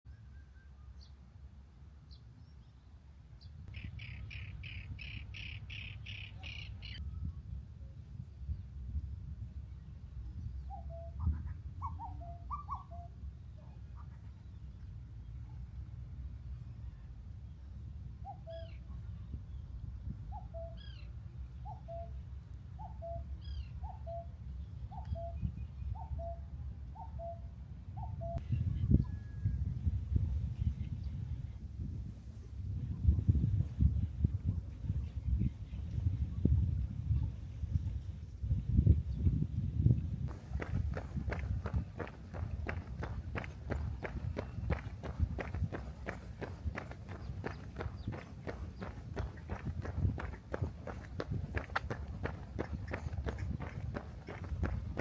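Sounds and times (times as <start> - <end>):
bird chirping: 3.7 - 7.0, 40.4 - 55.0.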